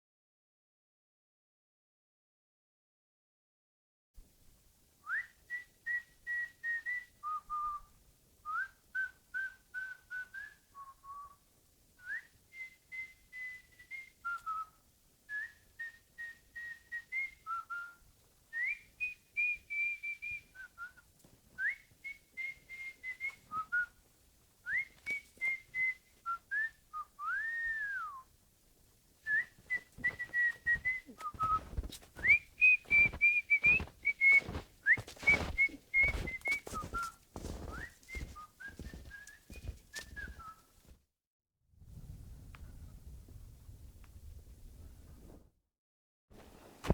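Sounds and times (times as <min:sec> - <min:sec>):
person whistling a tune: 0:12.0 - 0:14.7, 0:15.3 - 0:18.0, 0:24.7 - 0:28.2, 0:29.3 - 0:40.6.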